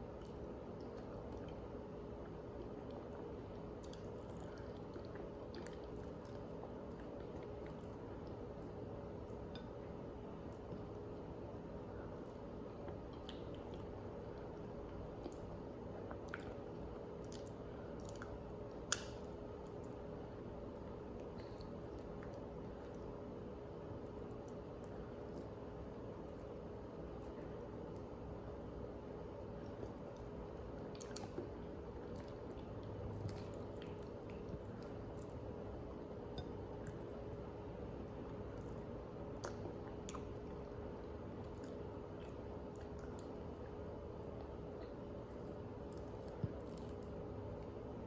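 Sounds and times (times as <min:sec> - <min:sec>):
steady low hum: 0:00.0 - 0:48.0
person chewing food: 0:00.1 - 0:11.2, 0:12.1 - 0:20.0, 0:29.6 - 0:37.4, 0:44.4 - 0:47.8.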